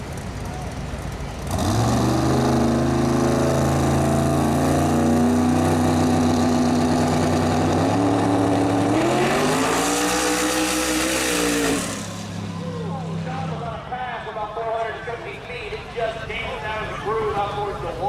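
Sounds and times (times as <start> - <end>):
race car engine revving: 1.3 - 13.9.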